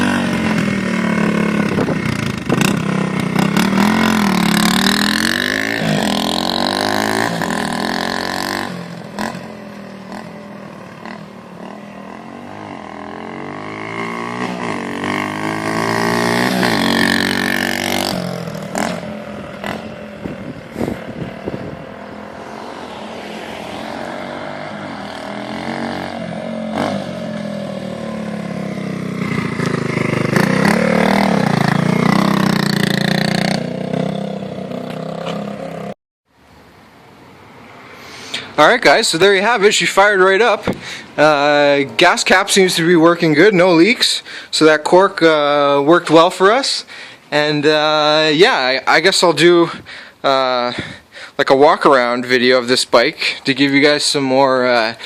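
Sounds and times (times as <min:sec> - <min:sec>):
small motorbike engine revving: 0:00.0 - 0:35.9.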